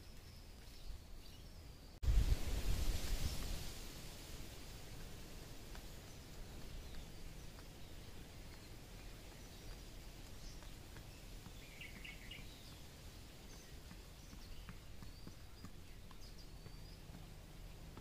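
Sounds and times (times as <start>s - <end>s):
small birds chirping: 0.0s - 2.0s, 4.5s - 18.0s
bird pecking grain: 2.4s - 18.0s.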